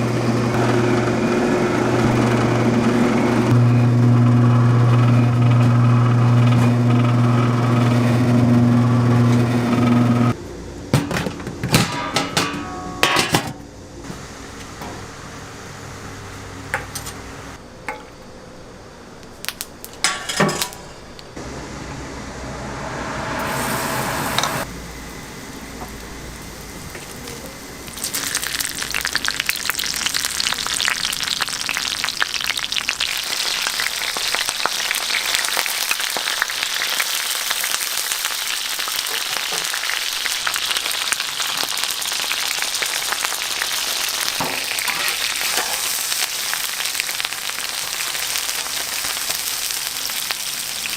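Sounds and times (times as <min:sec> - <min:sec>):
short rush of noise: 0:21.4 - 0:24.7
batter sizzling in oil: 0:23.5 - 0:50.9.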